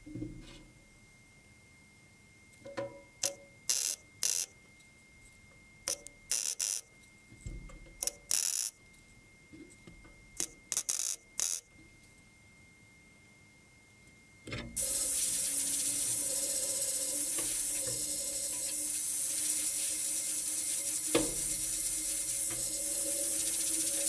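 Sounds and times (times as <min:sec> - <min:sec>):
welder crackling bursts: 0:03.7 - 0:04.5, 0:05.9 - 0:06.8, 0:08.3 - 0:08.7, 0:10.7 - 0:11.6, 0:14.8 - 0:24.0.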